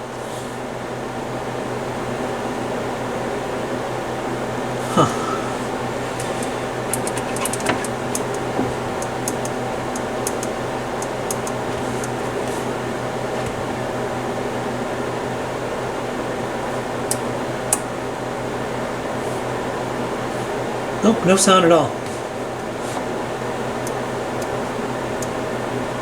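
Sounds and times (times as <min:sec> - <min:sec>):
room heater whirring: 0:00.0 - 0:26.0
small sharp clicks: 0:06.2 - 0:12.2.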